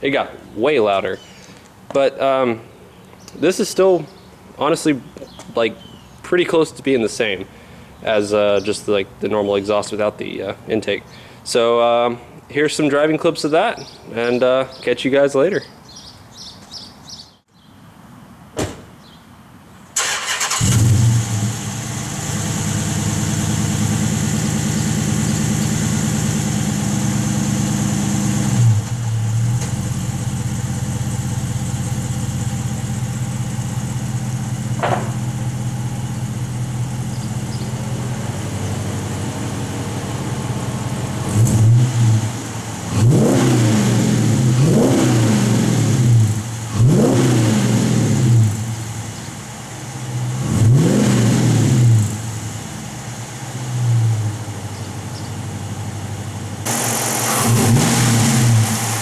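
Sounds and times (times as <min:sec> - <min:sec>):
engine clicks: 0:20.0 - 0:20.8
engine revving: 0:20.0 - 0:30.8, 0:36.4 - 0:49.1, 0:50.0 - 0:52.6, 0:56.6 - 0:59.0
car engine starting: 0:20.0 - 0:59.0.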